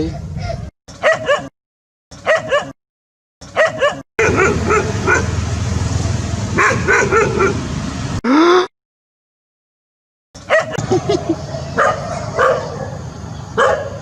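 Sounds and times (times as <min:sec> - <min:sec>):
dog yipping: 0:00.0 - 0:01.5, 0:02.2 - 0:02.8, 0:03.4 - 0:05.3, 0:06.6 - 0:07.6, 0:10.4 - 0:13.0, 0:13.6 - 0:14.0.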